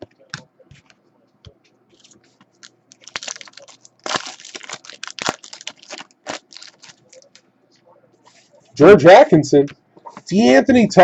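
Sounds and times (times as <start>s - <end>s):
foil wrapper crinkling and tearing: 2.6s - 7.4s.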